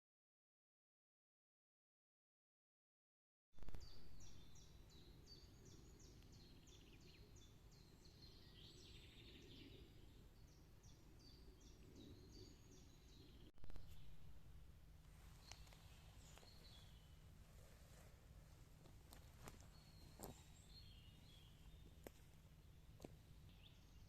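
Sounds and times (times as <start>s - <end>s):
low steady background rumble: 3.6s - 24.0s.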